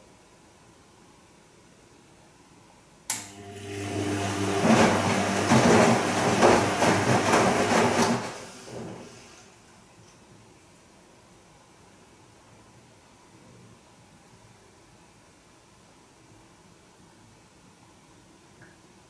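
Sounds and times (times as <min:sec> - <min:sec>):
washing machine motor click: 0:03.1 - 0:03.5
washing machine drum humming: 0:03.2 - 0:09.4.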